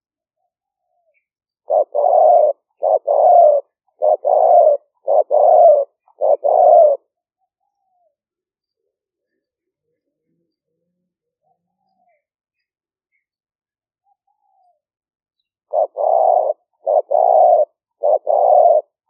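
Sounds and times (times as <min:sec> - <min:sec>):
dove cooing: 0:00.4 - 0:08.1, 0:15.7 - 0:19.0.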